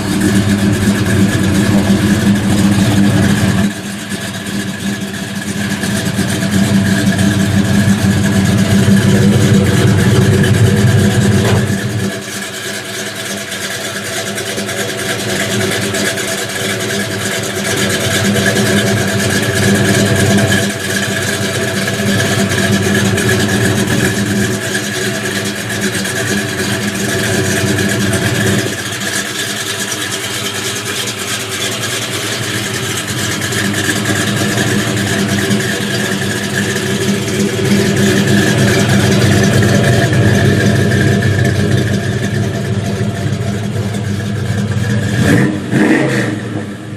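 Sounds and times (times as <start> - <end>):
muscle car engine revving: 0.0 - 46.9.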